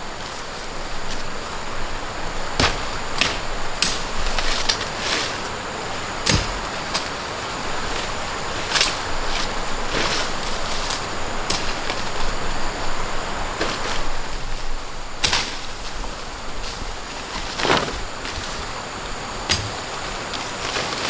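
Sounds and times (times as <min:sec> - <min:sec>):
sharp knocks and clicks: 0:19.4 - 0:20.5.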